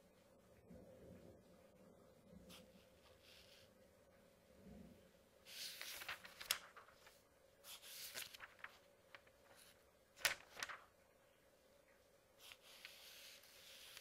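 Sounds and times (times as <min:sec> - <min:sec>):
paper pages turning: 0:05.5 - 0:11.1, 0:12.4 - 0:14.0.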